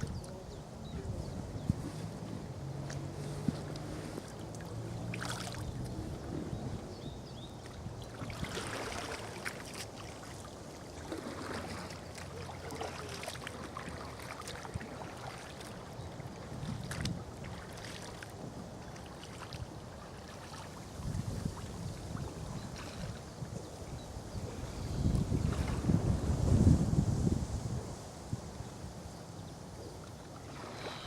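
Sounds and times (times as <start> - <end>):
water lapping around kayak: 0.0 - 31.0
small splashes: 2.7 - 6.2, 7.6 - 23.2, 30.0 - 31.0.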